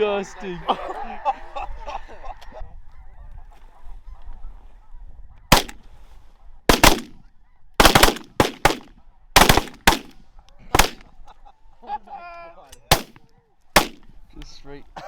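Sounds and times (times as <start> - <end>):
geese calling: 1.9 - 12.2
shotgun blasts: 5.5 - 5.8, 6.7 - 7.2, 7.8 - 10.2, 10.8 - 11.1, 12.9 - 13.2, 13.8 - 14.1.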